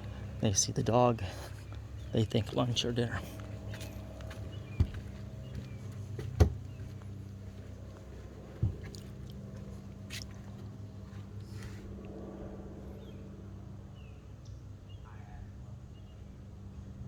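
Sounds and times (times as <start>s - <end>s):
steady low hum: 0.0s - 17.0s
dull low thumps: 3.1s - 11.4s.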